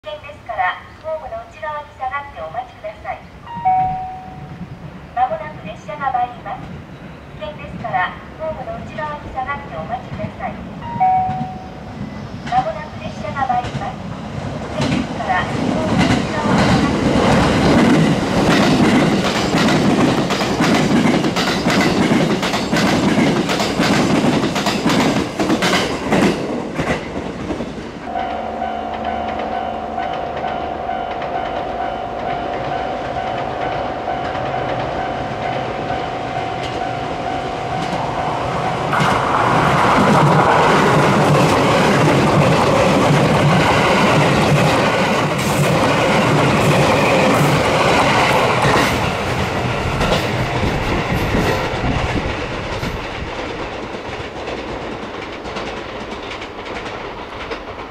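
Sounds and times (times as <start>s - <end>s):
train steady whine: 0.0s - 57.9s
electric train passing: 0.3s - 57.9s
wheels clattering over rail joints: 14.7s - 27.9s.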